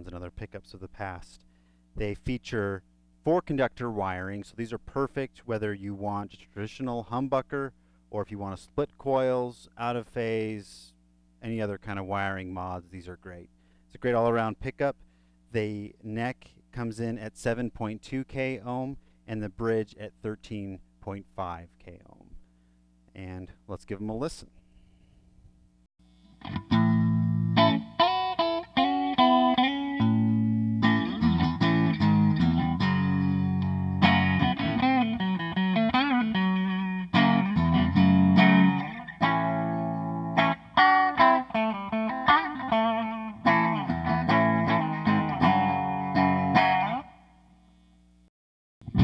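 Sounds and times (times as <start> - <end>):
electric guitar chords and phrases: 26.2 - 47.3.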